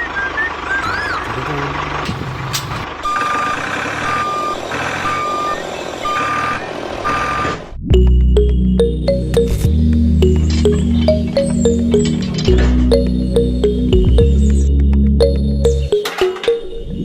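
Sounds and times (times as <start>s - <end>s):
low engine hum: 0.0s - 4.5s, 8.0s - 15.9s
truck reversing alarm beeps: 0.0s - 17.0s
music: 7.9s - 17.0s.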